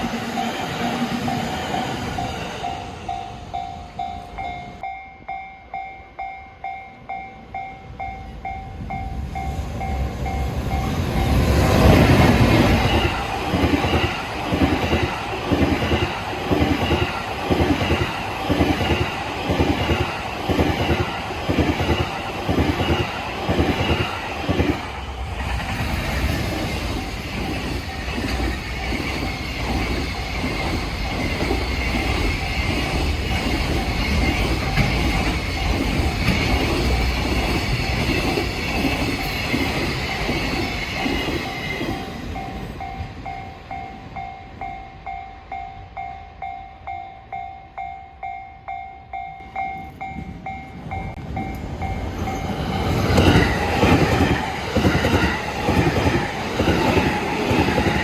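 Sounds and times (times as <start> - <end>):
level crossing warning bell: 0.0 - 11.5, 41.6 - 53.0
train passing: 0.0 - 58.0.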